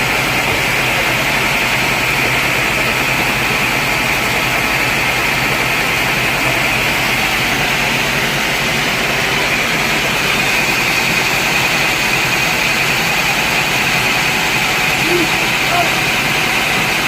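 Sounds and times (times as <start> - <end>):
sawmill machinery running: 0.0 - 17.0.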